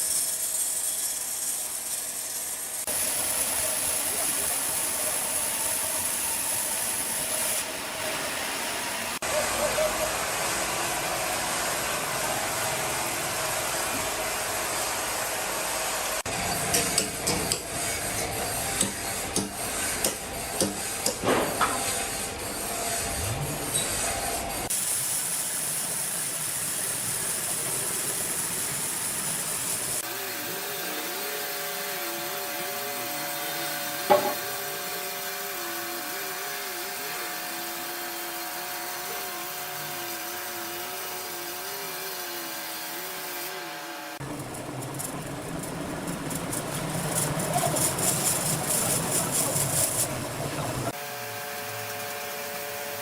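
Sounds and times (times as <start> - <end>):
sawmill saw cutting timber: 0.0 - 53.0
sharp knock: 34.1 - 34.4.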